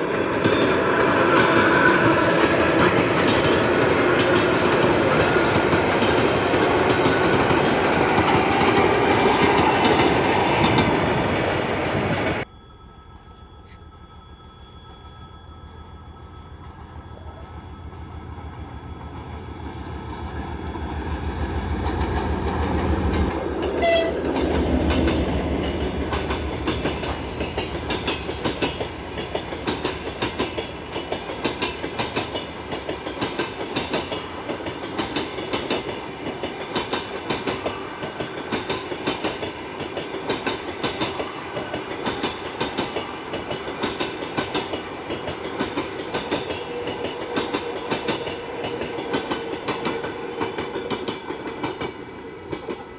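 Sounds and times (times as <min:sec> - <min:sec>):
wheels clacking over rail joints: 0:00.0 - 0:12.4, 0:19.0 - 0:52.9
train passing: 0:00.0 - 0:52.9
train horn toot: 0:23.6 - 0:24.4.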